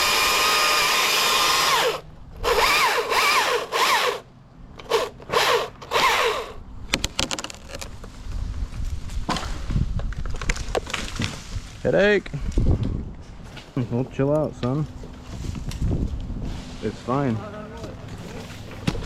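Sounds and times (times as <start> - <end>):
chainsaw cutting: 0.0 - 6.6
wood cracking and snapping: 9.3 - 11.6.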